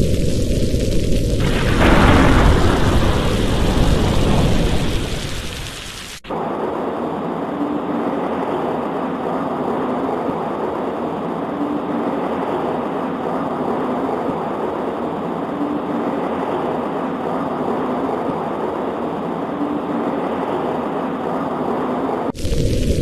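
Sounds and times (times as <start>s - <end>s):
rain pattering on window: 0.0s - 6.2s.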